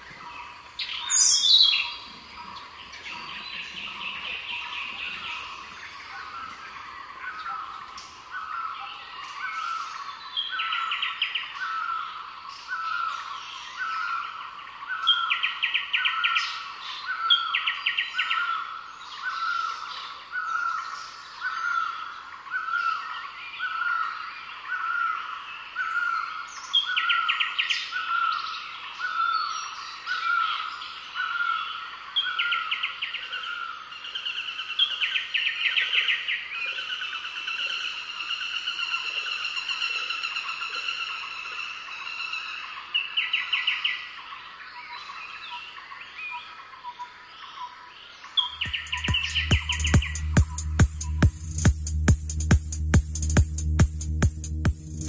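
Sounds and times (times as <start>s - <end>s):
bird trills: 0.0s - 14.3s, 48.3s - 52.4s
bird chirps: 0.0s - 55.0s.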